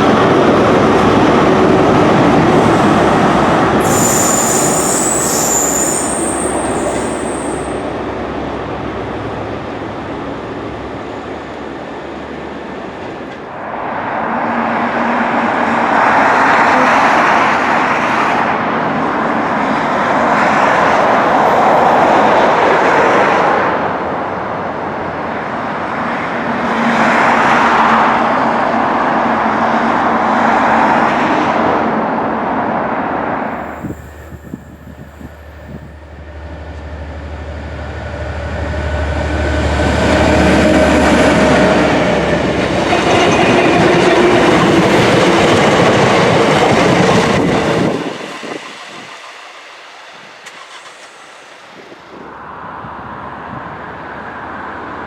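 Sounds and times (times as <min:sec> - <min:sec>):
train wheels on rails: 0:00.0 - 0:24.0, 0:33.3 - 0:52.3.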